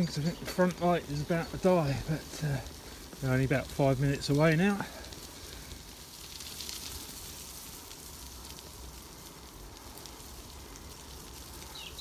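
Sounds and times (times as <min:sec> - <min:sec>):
bicycle tyres on loose surface: 0:00.0 - 0:12.0.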